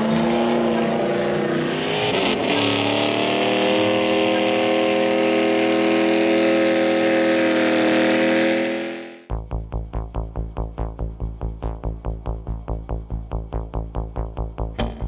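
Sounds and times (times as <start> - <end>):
car engine at high revs: 0.0 - 9.3.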